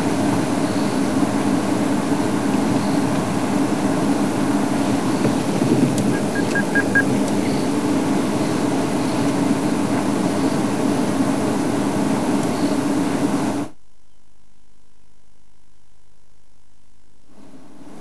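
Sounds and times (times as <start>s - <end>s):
vehicle engine droning: 0.0s - 13.6s
short high chirps: 6.2s - 7.6s.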